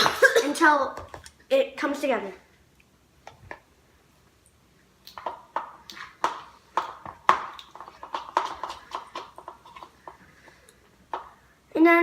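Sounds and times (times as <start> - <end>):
spoon scraping a bowl: 7.4 - 10.7.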